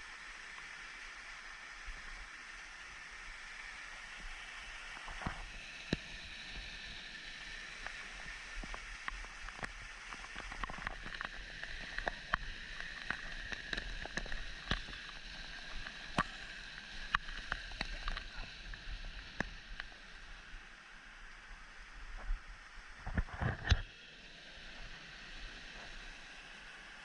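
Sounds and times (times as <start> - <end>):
stream water running: 0.0 - 27.0
sharp clicks and splashes: 4.9 - 20.2.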